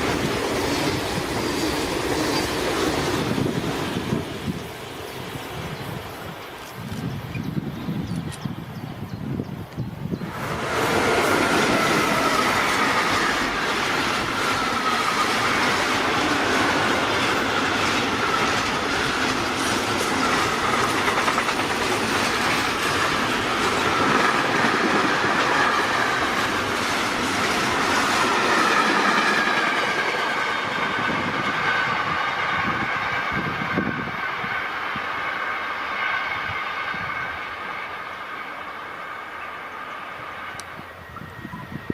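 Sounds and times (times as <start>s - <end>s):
train high whine: 0.0s - 41.9s
train wheels clicking over rail joints: 10.2s - 35.2s.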